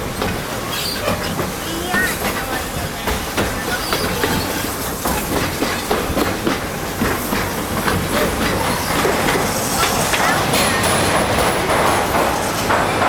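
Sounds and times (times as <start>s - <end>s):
train cars rattling: 0.0s - 13.0s
train rumbling along track: 0.0s - 13.0s
train wheels clacking: 0.0s - 13.0s.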